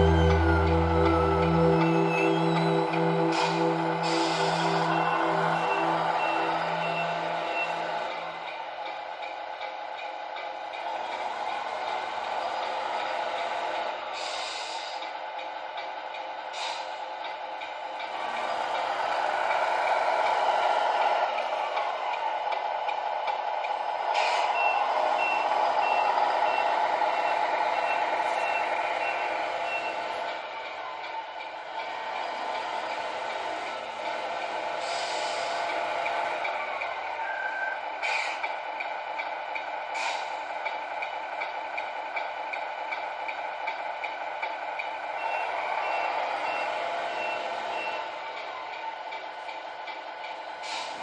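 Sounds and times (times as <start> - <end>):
high reversing beeps: 0.0 - 8.5, 24.2 - 30.2, 45.1 - 48.2
truck engine sound from small speaker: 0.0 - 10.7
simulated diesel engine running: 0.0 - 51.0
air brake hiss: 3.3 - 4.8, 14.1 - 15.2, 16.5 - 17.1, 24.1 - 24.6, 34.7 - 35.9, 38.0 - 38.5, 39.9 - 40.4, 50.6 - 51.0.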